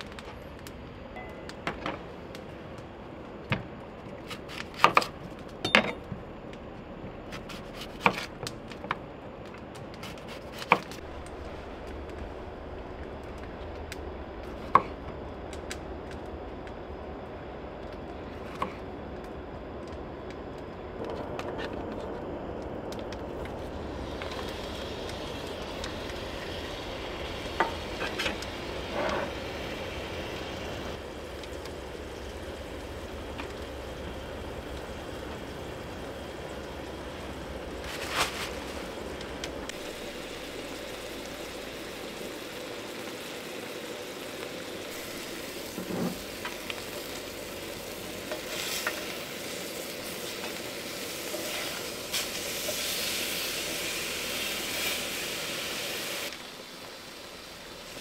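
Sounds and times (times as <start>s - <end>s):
burger patties sizzling: 10.0s - 15.9s, 22.8s - 58.0s.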